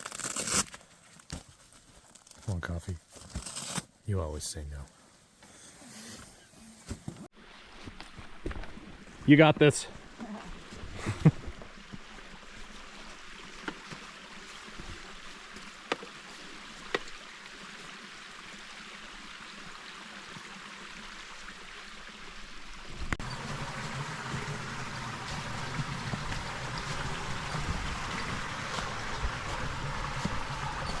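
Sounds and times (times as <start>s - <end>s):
water flowing: 16.5s - 31.0s
loud rushing water: 23.2s - 31.0s.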